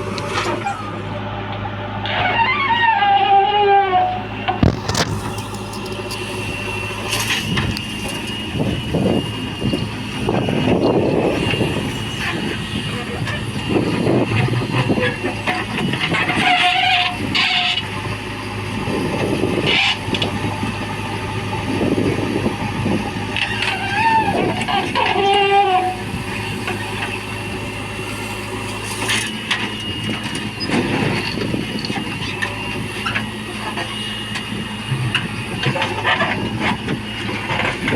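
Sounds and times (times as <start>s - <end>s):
diesel engine running: 0.0s - 37.9s
high hydraulic whine: 0.0s - 37.9s
scraping and falling soil: 4.6s - 6.4s.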